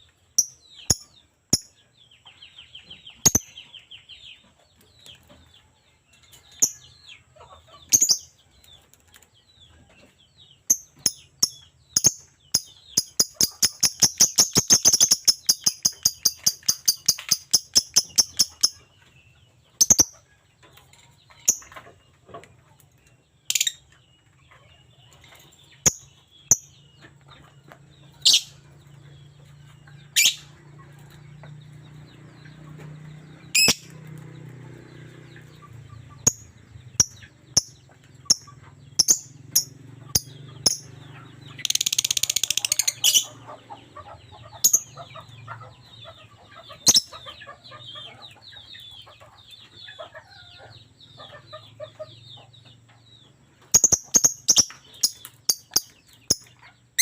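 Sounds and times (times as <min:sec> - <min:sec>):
bird chirping shrilly: 0:33.6 - 0:34.0.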